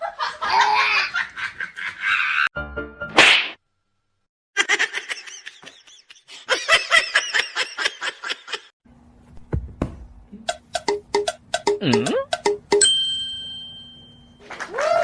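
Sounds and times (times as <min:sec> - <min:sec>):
high-pitched laughter bursts: 0:00.3 - 0:02.5, 0:04.6 - 0:08.7.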